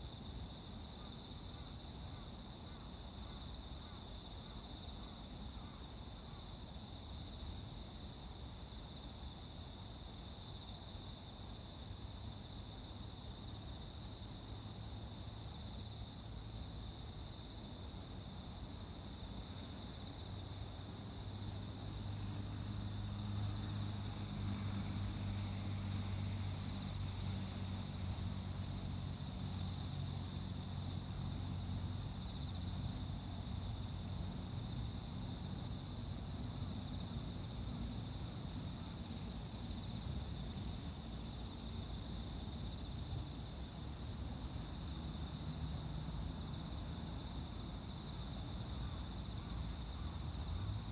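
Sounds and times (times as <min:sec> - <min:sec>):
crickets trilling: 0:00.0 - 0:50.9
pulsing insect chirp: 0:00.0 - 0:50.9.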